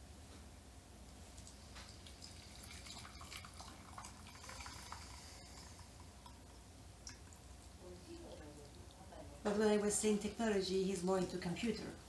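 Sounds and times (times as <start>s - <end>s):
liquid trickling while poured: 1.3s - 7.8s.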